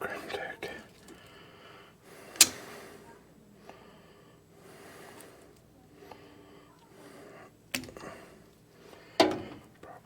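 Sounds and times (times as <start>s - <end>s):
soft breathing: 0.0s - 10.0s
sharp click: 2.4s - 2.7s.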